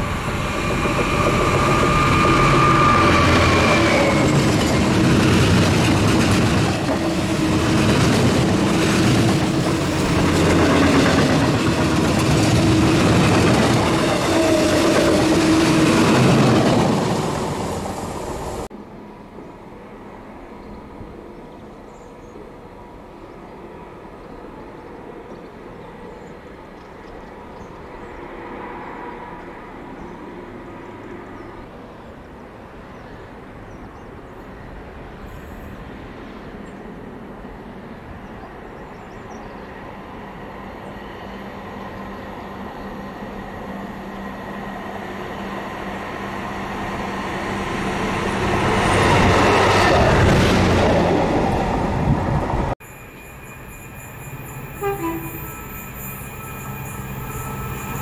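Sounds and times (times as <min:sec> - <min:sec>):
quiet outdoor background: 0:16.1 - 0:58.0.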